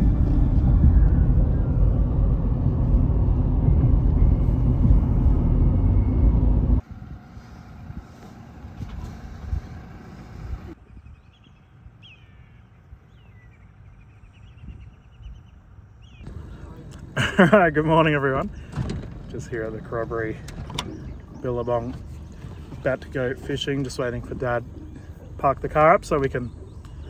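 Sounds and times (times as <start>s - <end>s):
vehicle road and engine rumble: 0.0s - 10.8s, 16.2s - 27.0s
outdoor ambience: 0.0s - 27.0s
falling bird calls: 16.2s - 27.0s.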